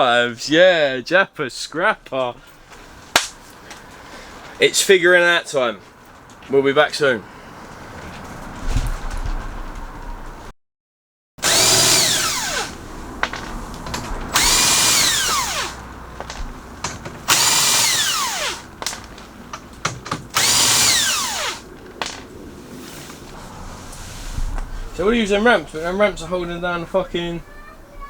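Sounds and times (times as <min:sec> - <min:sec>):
power tool motor whining: 0:11.4 - 0:19.4, 0:20.1 - 0:21.8.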